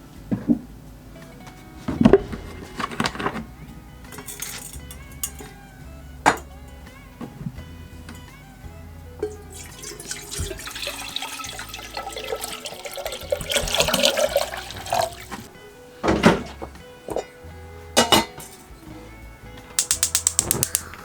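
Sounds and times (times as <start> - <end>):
soft background music: 0.0 - 21.0
water being poured: 9.2 - 15.5.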